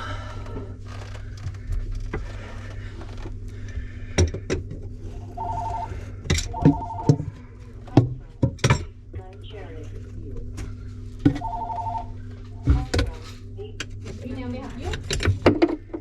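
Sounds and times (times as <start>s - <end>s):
electronic telephone ringing: 5.3s - 7.3s, 11.3s - 12.2s.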